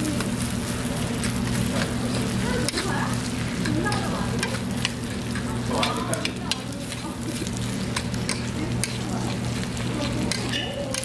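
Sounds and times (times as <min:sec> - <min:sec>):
fried rice sizzling: 0:00.0 - 0:11.0
spoons clicking against pan: 0:02.6 - 0:02.9, 0:03.6 - 0:11.0
metal spoons scraping pan: 0:02.6 - 0:11.0.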